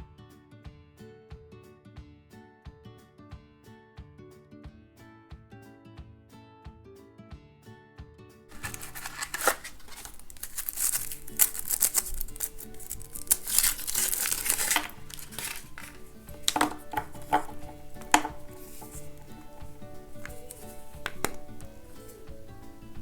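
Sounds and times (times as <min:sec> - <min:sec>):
light guitar music: 0:00.0 - 0:23.0
foil wrapper crinkling and tearing: 0:08.5 - 0:22.6.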